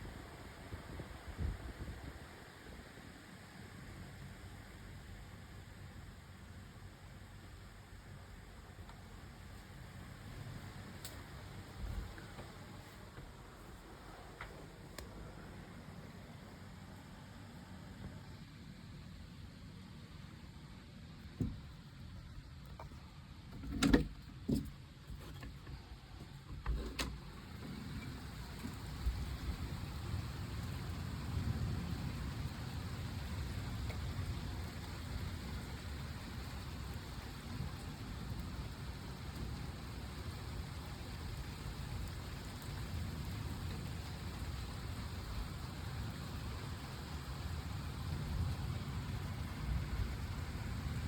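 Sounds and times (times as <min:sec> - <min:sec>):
steady rain hiss: 0:00.0 - 0:23.5, 0:24.3 - 0:51.0
constant low rumble: 0:00.0 - 0:51.0
low rumble of thunder: 0:27.7 - 0:51.0.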